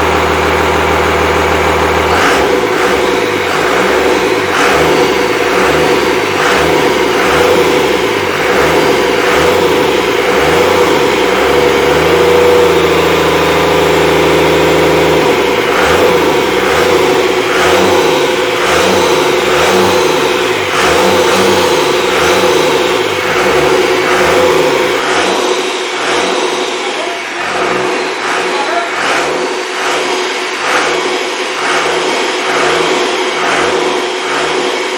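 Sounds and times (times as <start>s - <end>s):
diesel engine running unevenly: 0.0s - 34.9s.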